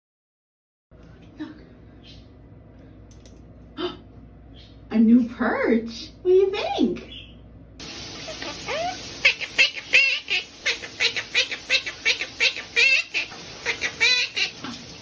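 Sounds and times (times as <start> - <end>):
bird chirping and chattering: 4.5 - 4.9, 7.1 - 7.4, 8.3 - 14.5.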